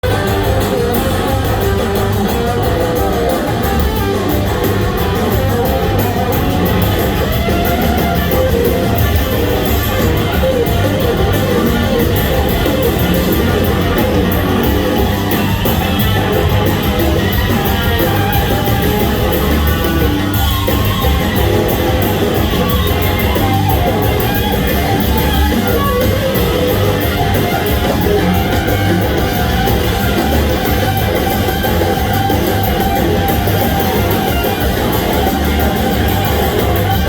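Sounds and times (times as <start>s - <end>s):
blues-rock band playing live: 0.0s - 37.0s
electric guitar: 0.0s - 37.0s.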